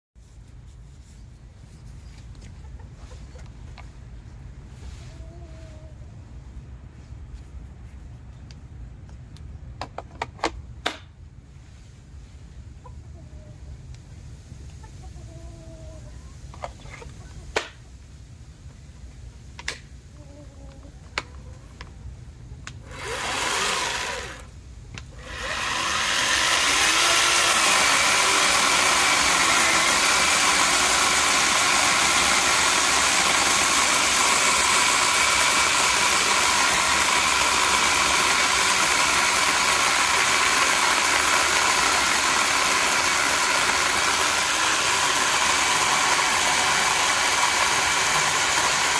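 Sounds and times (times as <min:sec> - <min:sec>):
electric chainsaw running: 0:22.8 - 0:24.5, 0:25.1 - 0:48.9.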